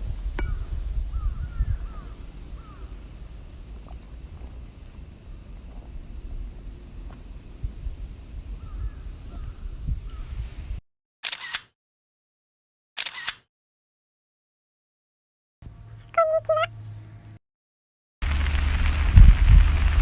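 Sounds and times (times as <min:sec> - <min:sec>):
outdoor hiss: 0:00.0 - 0:10.8, 0:18.2 - 0:20.0
wind rumble on microphone: 0:00.0 - 0:10.8, 0:18.2 - 0:20.0
bird calling short notes: 0:16.1 - 0:16.8.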